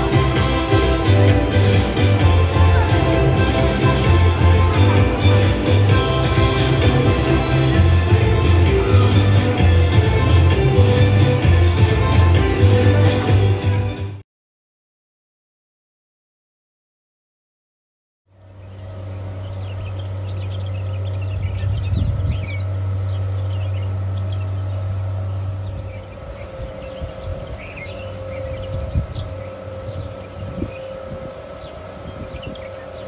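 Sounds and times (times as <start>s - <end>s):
steady low hum: 0.0s - 14.2s, 18.3s - 33.0s
small birds chirping: 18.5s - 33.0s.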